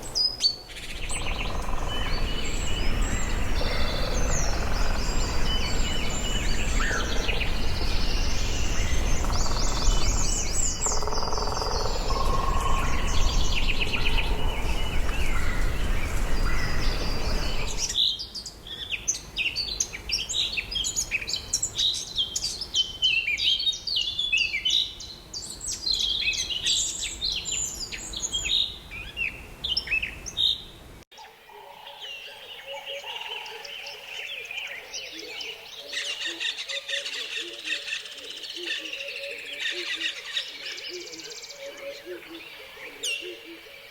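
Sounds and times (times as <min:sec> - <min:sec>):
birds chirping: 0:00.0 - 0:18.0
low rumble: 0:11.9 - 0:17.9.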